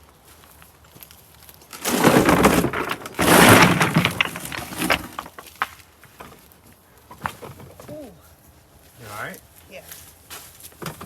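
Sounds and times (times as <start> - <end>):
rocks clattering and crashing: 1.5 - 6.5
stones knocking: 1.8 - 6.4.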